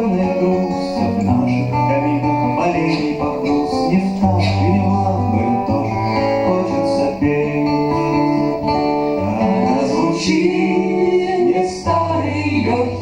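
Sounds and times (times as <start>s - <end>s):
guitar playing: 0.0s - 13.0s
sustained bass notes: 0.0s - 13.0s.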